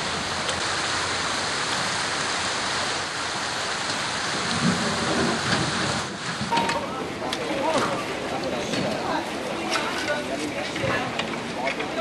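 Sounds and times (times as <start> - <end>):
rain hissing: 0.0 - 9.6.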